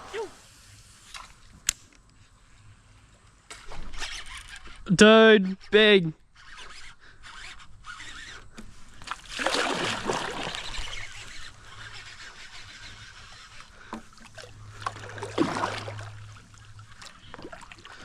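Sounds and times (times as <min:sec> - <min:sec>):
fish thrashing and splashing water: 0:09.1 - 0:11.1, 0:14.1 - 0:18.0.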